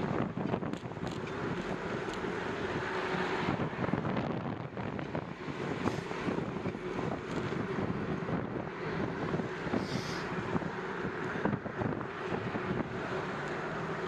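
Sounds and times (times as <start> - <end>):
wind rushing across microphone: 0.0 - 14.0.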